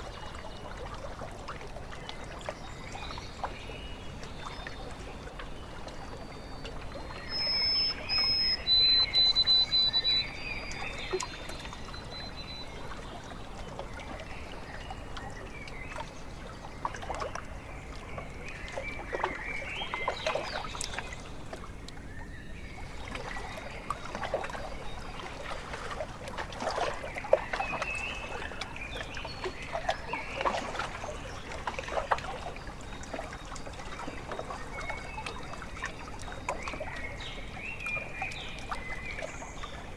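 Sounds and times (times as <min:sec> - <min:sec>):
small splashes: 0:00.0 - 0:39.9
small waves lapping at shore: 0:00.0 - 0:39.9
bird whistled call: 0:07.2 - 0:11.3.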